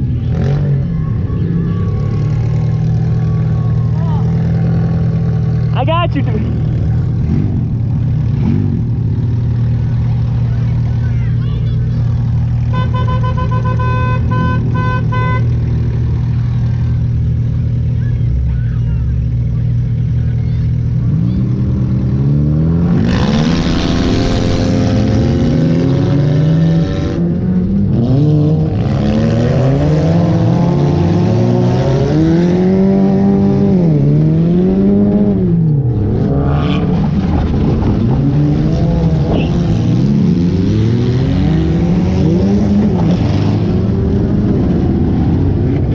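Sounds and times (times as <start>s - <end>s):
race car engine revving: 11.8s - 45.9s.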